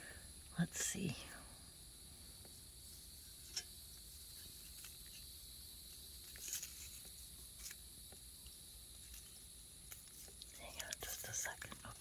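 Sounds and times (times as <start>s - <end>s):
insects chirring: 0.0s - 12.0s
soft clicks and rustles: 2.4s - 12.0s.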